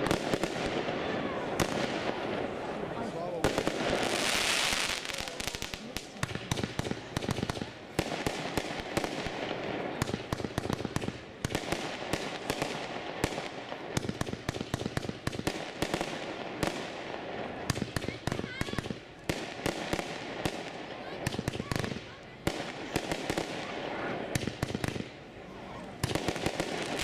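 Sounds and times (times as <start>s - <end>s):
firework crackling pops: 0.0s - 2.8s, 3.4s - 25.2s, 25.9s - 27.0s.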